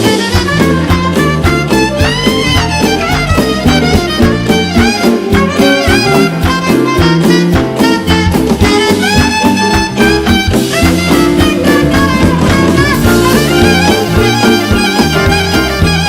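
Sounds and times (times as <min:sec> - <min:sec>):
jazz band playing: 0:00.0 - 0:16.0.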